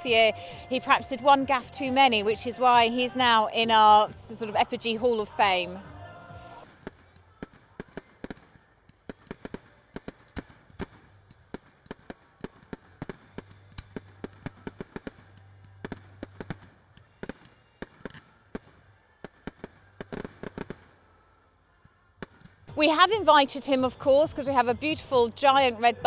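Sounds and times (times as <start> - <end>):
fireworks cracking and popping: 6.6 - 21.2.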